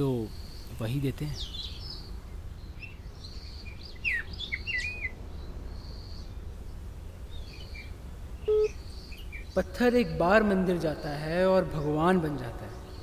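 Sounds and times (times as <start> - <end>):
birds chirping: 0.0 - 13.0
short beep: 8.5 - 8.7.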